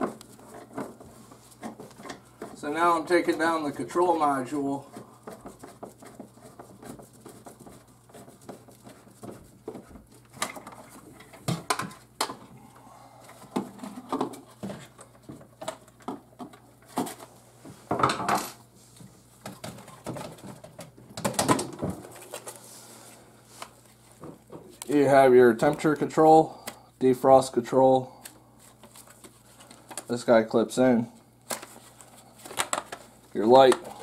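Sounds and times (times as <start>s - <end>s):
plastic clicks and clatter: 32.4s - 33.1s.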